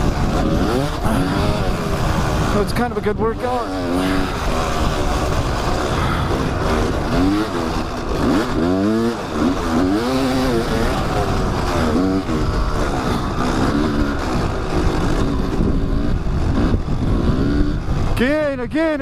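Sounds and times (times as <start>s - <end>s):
wind on microphone: 0.0s - 3.2s, 9.6s - 18.2s
dirt bike engine revving: 0.0s - 19.0s.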